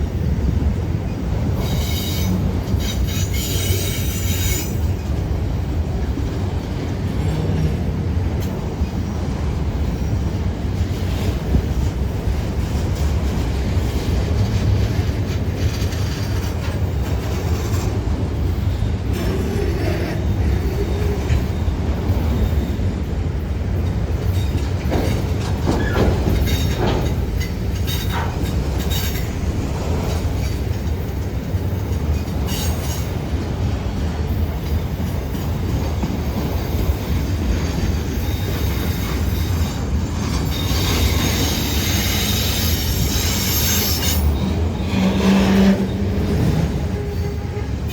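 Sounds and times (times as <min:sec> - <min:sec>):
freight train rumbling on rails: 0:00.0 - 0:47.9
train wheels squealing: 0:01.1 - 0:05.6, 0:15.0 - 0:22.9, 0:24.2 - 0:29.4, 0:30.2 - 0:33.4, 0:36.4 - 0:47.9
wheels clicking over rail joints: 0:10.6 - 0:22.7, 0:23.6 - 0:47.9.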